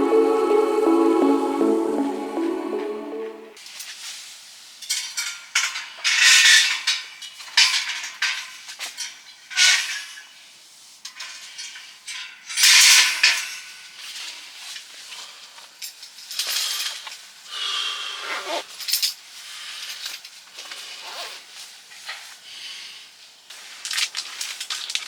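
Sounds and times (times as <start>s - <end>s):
music: 0.0s - 3.6s.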